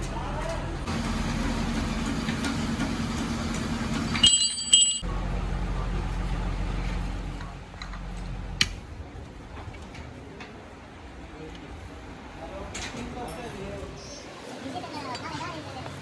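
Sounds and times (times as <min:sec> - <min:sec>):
low mechanical hum: 0:00.0 - 0:13.0
high ringing: 0:04.1 - 0:05.1.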